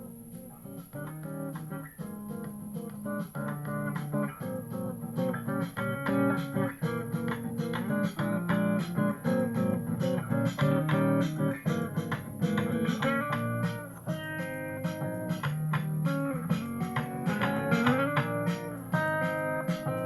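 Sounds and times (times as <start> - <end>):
guitar strumming chords: 0.0 - 20.0.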